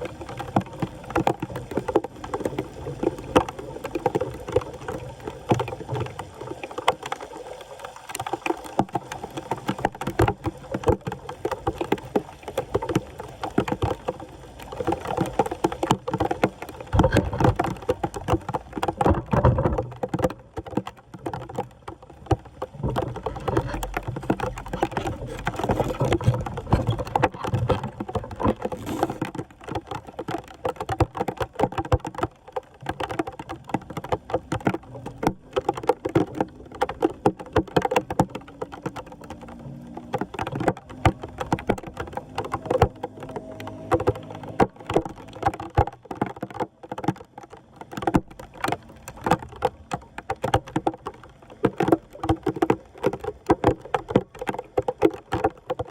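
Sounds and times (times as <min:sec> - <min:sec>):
floodwater sloshing and splashing: 0:00.0 - 0:55.9
debris knocking and scraping: 0:22.8 - 0:29.4.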